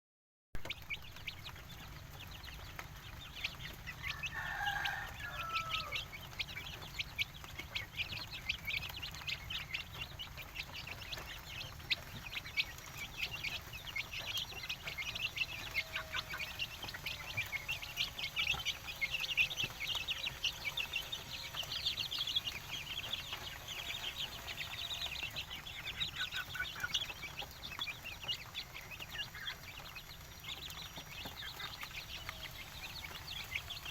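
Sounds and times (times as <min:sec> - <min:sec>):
chickens clucking: 0:00.6 - 0:33.9
high-pitched chirping: 0:00.6 - 0:33.9
loud chicken call: 0:03.8 - 0:06.9, 0:13.7 - 0:27.4.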